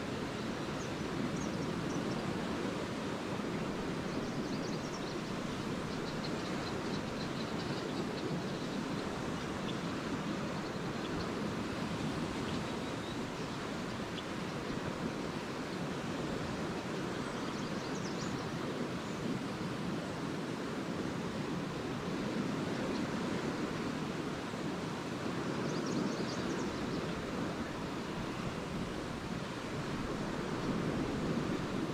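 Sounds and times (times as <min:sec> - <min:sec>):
lake waves washing on sand: 0:00.0 - 0:31.9
swallows chirping: 0:04.0 - 0:14.7.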